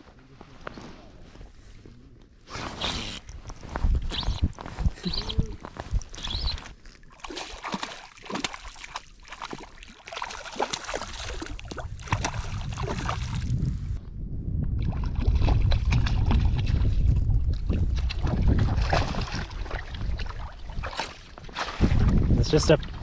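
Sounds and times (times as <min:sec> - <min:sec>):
wind buffeting the microphone: 0:03.1 - 0:06.8, 0:11.0 - 0:23.0.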